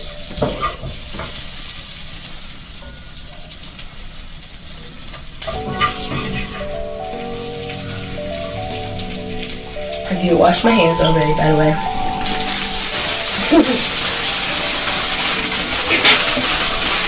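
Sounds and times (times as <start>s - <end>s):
food sizzling in a pan: 0.0s - 17.0s
background music: 5.4s - 17.0s
utensil scraping: 11.8s - 17.0s.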